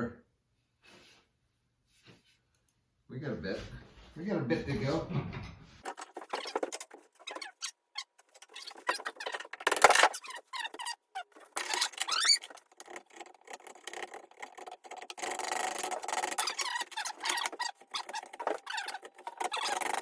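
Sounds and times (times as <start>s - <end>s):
rasp scraping wood: 5.8s - 20.0s.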